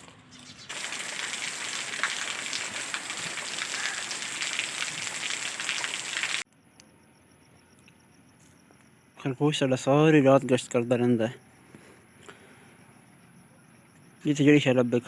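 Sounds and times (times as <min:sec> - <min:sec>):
rain on a hard surface: 0:00.7 - 0:06.4.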